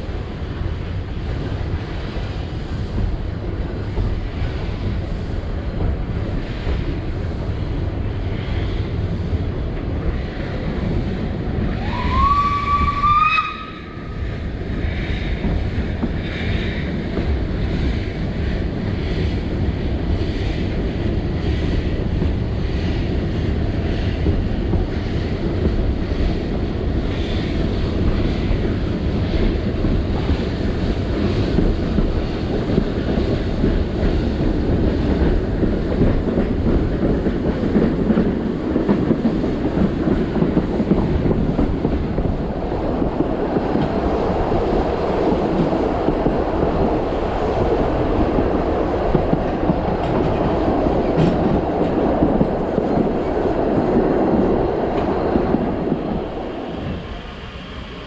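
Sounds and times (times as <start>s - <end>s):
steam train rumbling: 0.0s - 58.0s
steam locomotive whistle: 11.8s - 14.1s.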